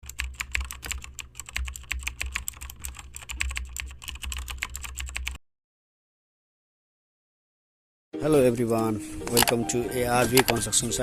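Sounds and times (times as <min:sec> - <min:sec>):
keyboard key clicks: 0:09.3 - 0:09.6, 0:10.3 - 0:10.6.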